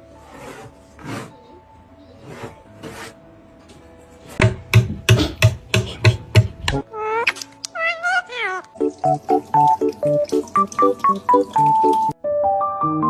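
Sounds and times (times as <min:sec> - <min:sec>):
faint background music: 0:00.0 - 0:12.6
scrapes: 0:00.1 - 0:01.5, 0:02.1 - 0:04.4
sharp knocks: 0:04.4 - 0:06.8.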